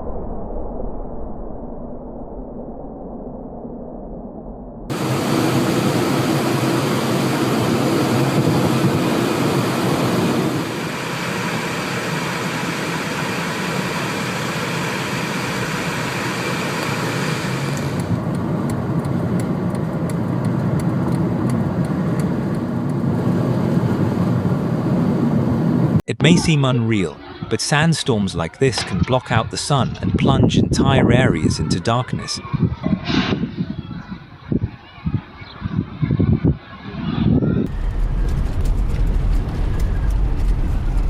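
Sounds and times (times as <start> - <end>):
strong wind: 0.0 - 26.6, 28.9 - 41.0
road traffic: 4.9 - 30.2.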